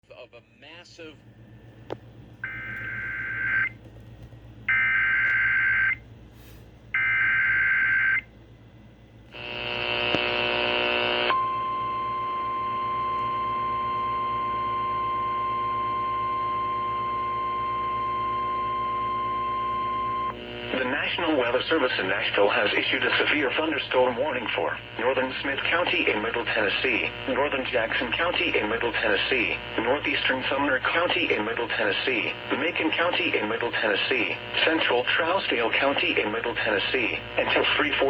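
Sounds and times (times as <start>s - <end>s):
harsh buzzing tone: 9.3s - 38.0s.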